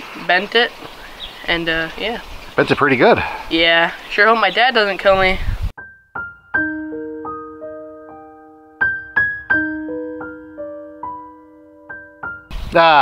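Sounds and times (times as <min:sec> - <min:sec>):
gentle piano melody: 0:05.8 - 0:12.5.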